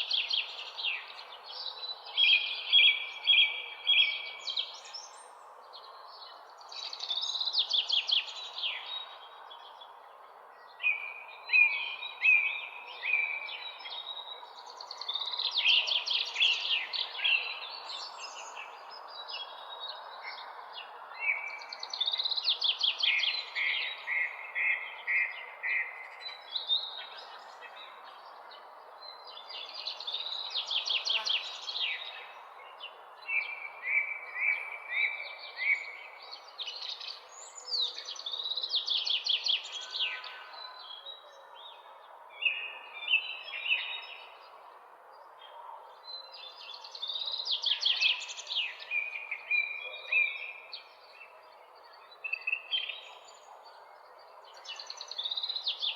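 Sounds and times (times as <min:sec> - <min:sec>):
songbirds singing: 0:00.0 - 0:55.9.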